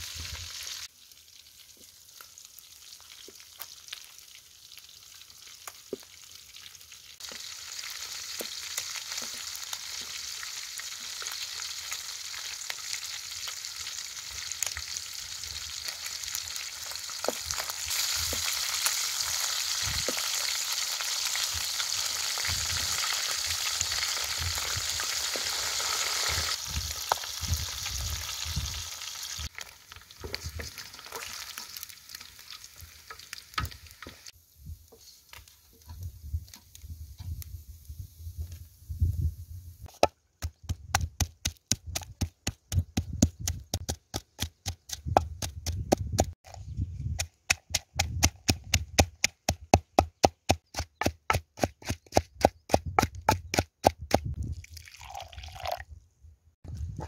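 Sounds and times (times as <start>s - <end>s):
deep-frying sizzle with pops: 0.0s - 34.4s.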